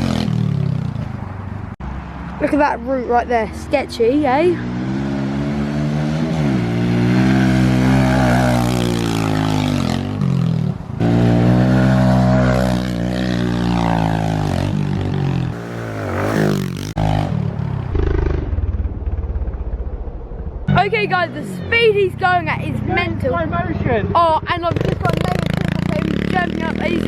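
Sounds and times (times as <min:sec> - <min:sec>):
dirt bike engine revving: 0:04.6 - 0:19.4.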